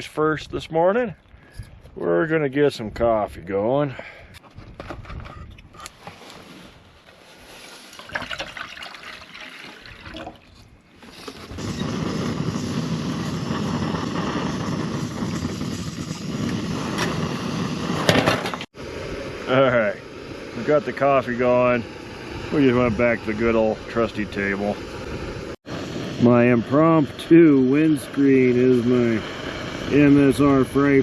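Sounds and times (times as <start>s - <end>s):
water pouring into a pot: 7.9s - 10.6s
camp stove burner hissing: 10.9s - 31.0s.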